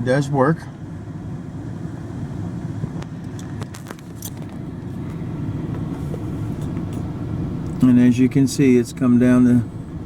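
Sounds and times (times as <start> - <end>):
air conditioner blowing: 0.0 - 10.0.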